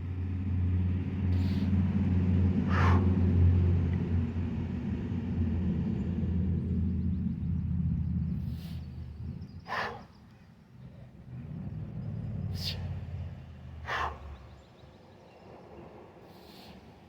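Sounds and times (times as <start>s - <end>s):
low rumble: 0.0s - 9.7s, 10.8s - 14.5s
man breathing out hard: 2.7s - 3.2s.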